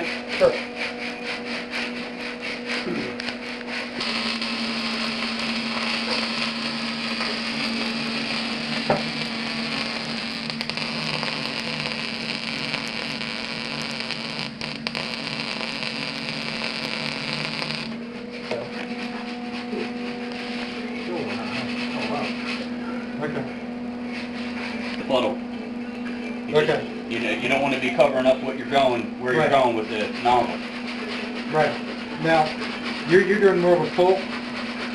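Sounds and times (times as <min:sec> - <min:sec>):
welding machine hum: 0:00.0 - 0:23.4
welding arc hissing: 0:02.2 - 0:18.1.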